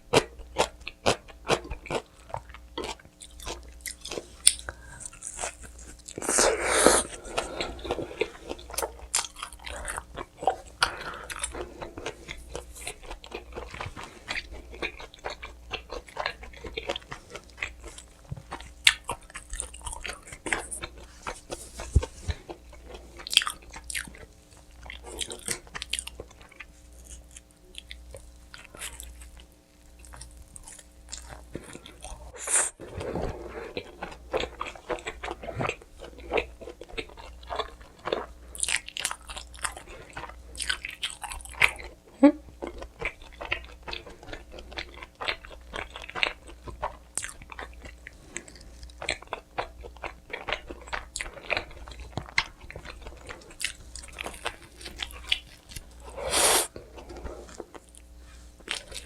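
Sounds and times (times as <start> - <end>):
crunching bites of pizza crust: 0.1 - 41.9
chewing: 0.1 - 59.0.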